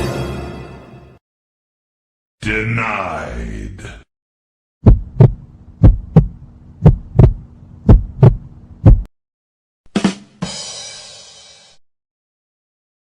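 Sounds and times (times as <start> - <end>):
heartbeat thumps: 4.8 - 9.1.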